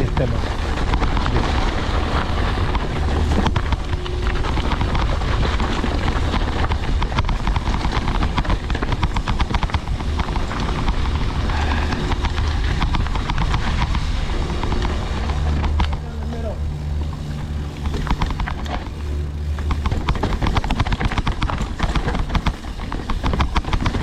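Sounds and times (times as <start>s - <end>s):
bike chain and frame rattling: 0.0s - 24.0s
wind buffeting microphone: 0.0s - 24.0s.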